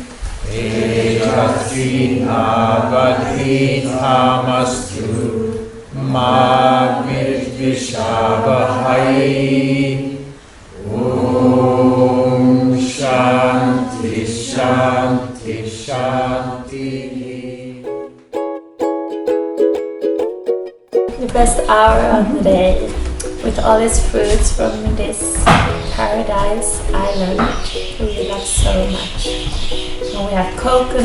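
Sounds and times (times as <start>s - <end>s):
voices chanting: 0.1s - 18.2s, 21.0s - 31.0s
plucked strings: 17.8s - 31.0s.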